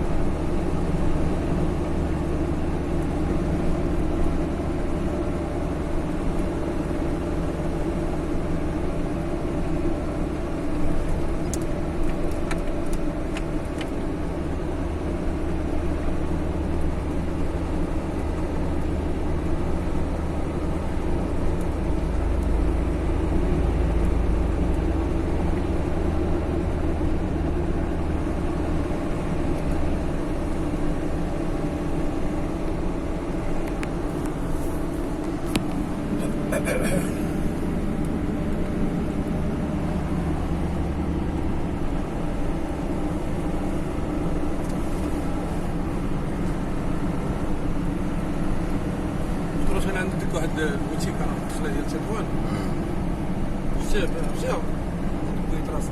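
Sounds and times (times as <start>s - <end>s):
car engine and road noise: 0.0s - 55.9s.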